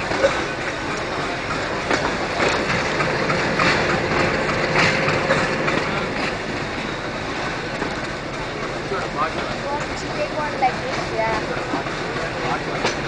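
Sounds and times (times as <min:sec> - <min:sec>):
train rolling rumble: 0:00.0 - 0:13.0
wheels clacking over rail joints: 0:00.0 - 0:13.0.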